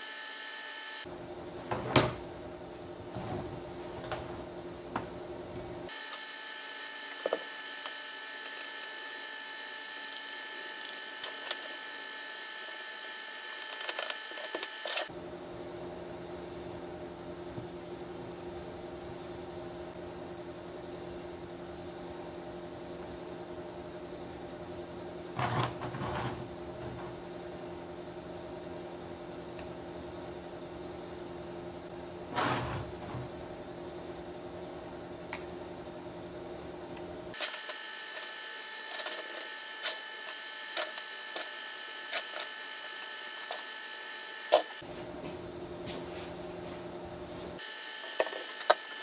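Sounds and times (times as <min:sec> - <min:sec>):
steady background hum: 0:01.0 - 0:49.0.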